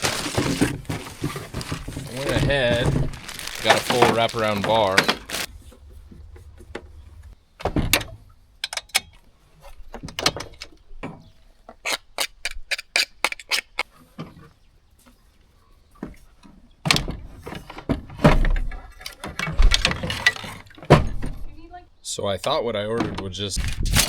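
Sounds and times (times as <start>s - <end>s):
rustling: 0.0s - 7.4s
heavy thumps: 0.0s - 8.0s
hand tools clicking and knocking: 11.7s - 13.8s.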